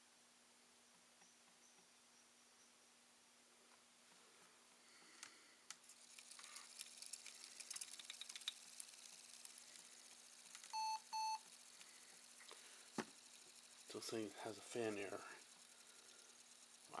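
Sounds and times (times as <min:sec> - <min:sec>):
light clicks and crackles: 0:05.1 - 0:10.8
short high laptop beeps: 0:10.7 - 0:11.4.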